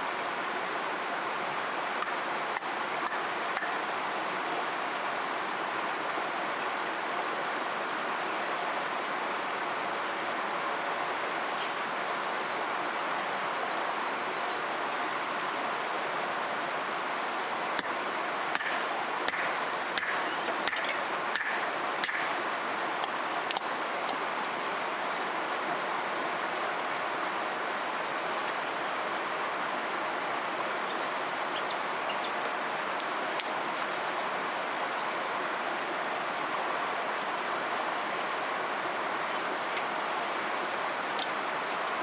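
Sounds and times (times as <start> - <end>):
river water flowing: 0.0 - 42.0.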